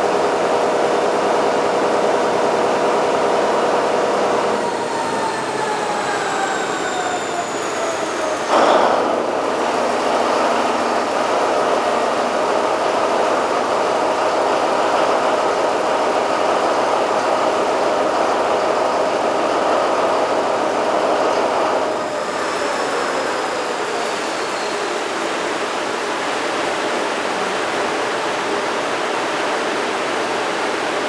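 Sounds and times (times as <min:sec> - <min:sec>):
diesel generator engine running: 0:00.0 - 0:31.0
high falling whine: 0:03.0 - 0:14.0.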